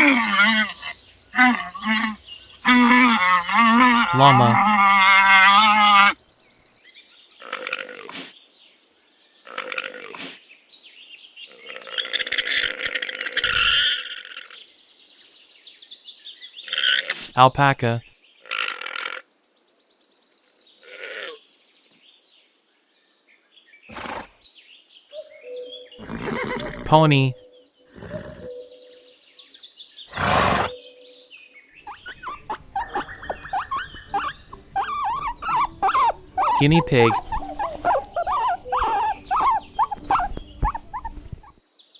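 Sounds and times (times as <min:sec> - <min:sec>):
llama calling: 0:00.0 - 0:06.2, 0:32.1 - 0:41.1
pony snorting: 0:23.9 - 0:24.4, 0:26.0 - 0:26.8, 0:27.9 - 0:28.6, 0:30.1 - 0:30.8.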